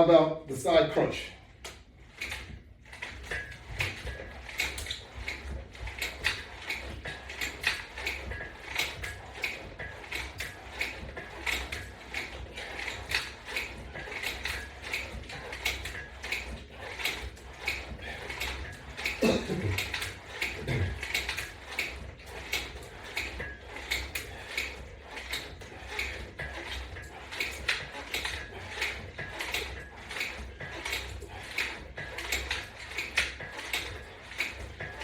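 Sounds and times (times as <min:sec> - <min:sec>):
exercise machine attachment clicking: 0:00.0 - 0:35.0.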